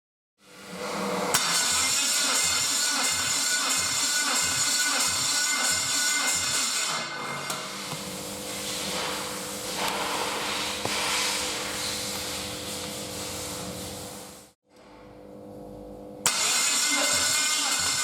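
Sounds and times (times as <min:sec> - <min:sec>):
engine starter cranking: 0:01.4 - 0:05.1, 0:16.3 - 0:18.0.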